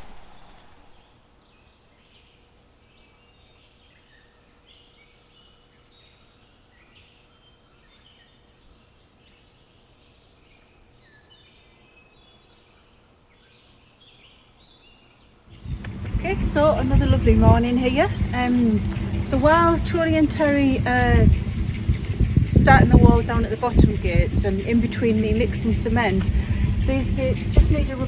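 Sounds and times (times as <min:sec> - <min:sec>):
birds chirping: 0:14.0 - 0:28.0.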